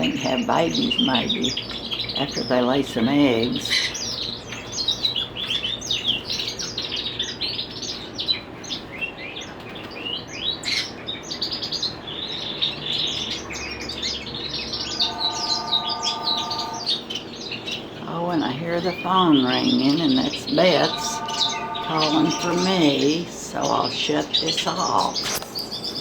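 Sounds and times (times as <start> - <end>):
caged birds chirping: 0.0 - 26.0
telephone ringing: 14.8 - 17.0, 18.5 - 24.0.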